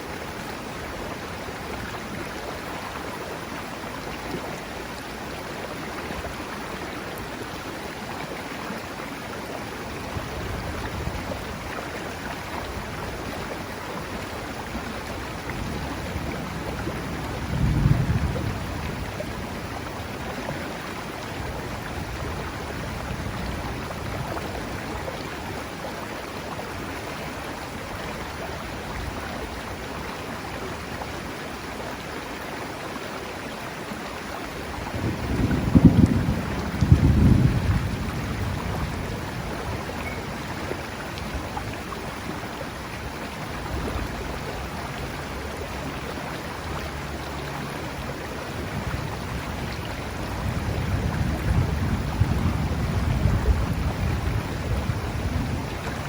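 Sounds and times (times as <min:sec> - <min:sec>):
river water rushing: 0:00.0 - 0:56.0
distant thunder rumbling: 0:15.8 - 0:19.6, 0:34.9 - 0:40.4, 0:50.4 - 0:55.9.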